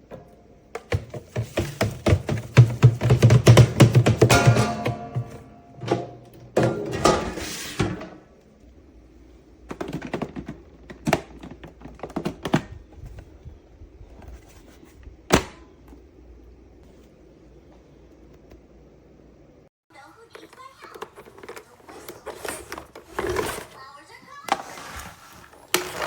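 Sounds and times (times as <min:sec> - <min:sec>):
knocks and clicks of objects handled: 0:00.0 - 0:07.2, 0:09.6 - 0:13.2.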